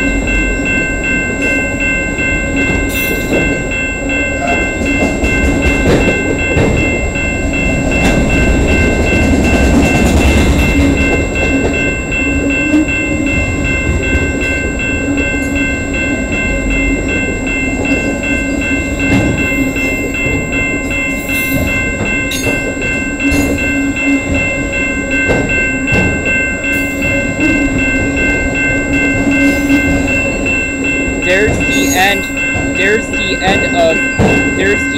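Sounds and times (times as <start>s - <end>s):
freight train wheels knocking: 0.0s - 34.9s
thin high ringing tones: 10.6s - 34.9s.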